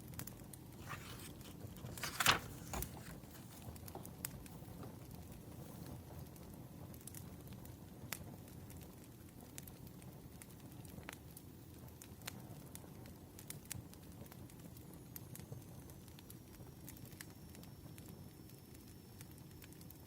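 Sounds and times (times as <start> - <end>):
low rumble of flame: 3.6 - 19.9.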